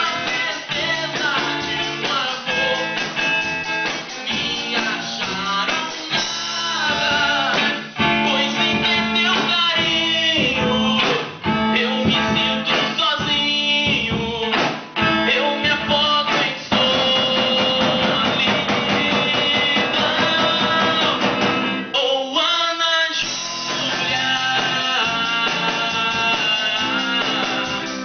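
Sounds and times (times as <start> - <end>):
band playing rock blues: 0.0 - 22.0, 23.2 - 28.0
electric guitar: 0.0 - 22.0, 23.2 - 28.0.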